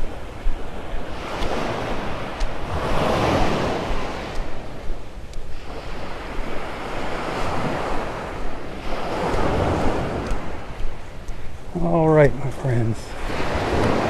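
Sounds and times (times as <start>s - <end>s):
small waves breaking on sand: 0.0s - 14.0s
wind rumbling on microphone: 0.0s - 14.0s.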